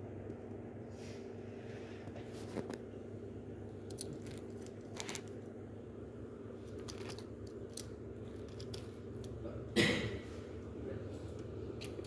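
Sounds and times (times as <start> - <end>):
low electrical hum: 0.0 - 12.0
small clicks and crackles: 3.8 - 5.4.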